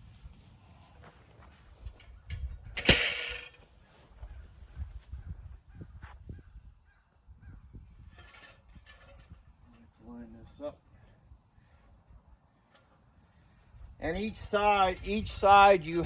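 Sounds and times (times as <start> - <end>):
crickets chirping: 0.0 - 16.0
loud metal clank: 2.3 - 3.6
metal parts knocking and clicking: 2.3 - 3.6.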